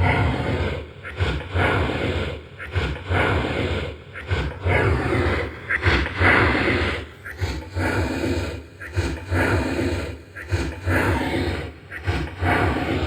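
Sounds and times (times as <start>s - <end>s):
slowed growling voice recording: 0.0s - 0.8s.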